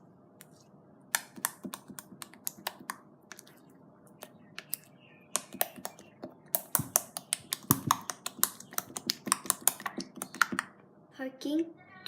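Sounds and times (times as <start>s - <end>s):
sticky slime clicks and pops: 1.1s - 3.4s, 5.4s - 10.7s.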